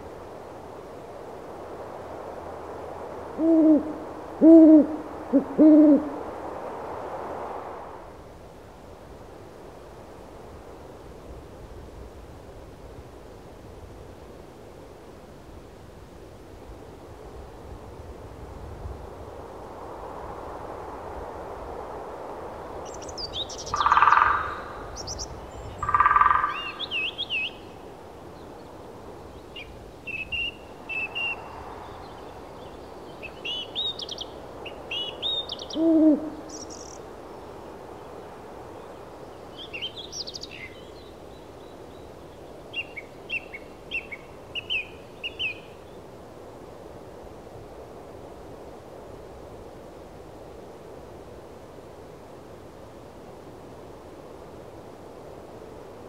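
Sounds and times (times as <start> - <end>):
birds calling: 25.6 - 27.6.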